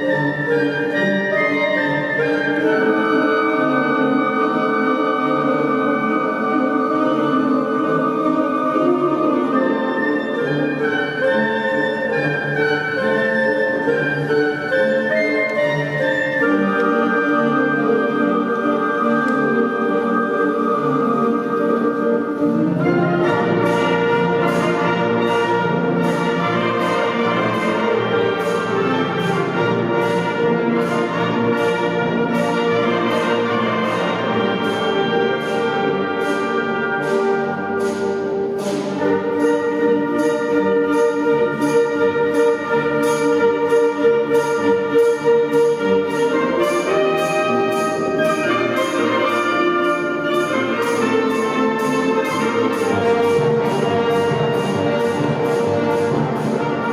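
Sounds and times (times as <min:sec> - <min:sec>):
brass band playing: 0:00.0 - 0:56.9
steady percussion beat: 0:22.3 - 0:56.9.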